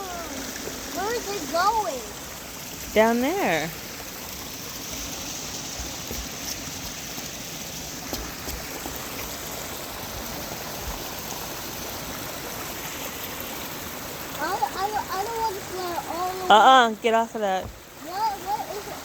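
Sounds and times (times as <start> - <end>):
stream water running: 0.0 - 19.0.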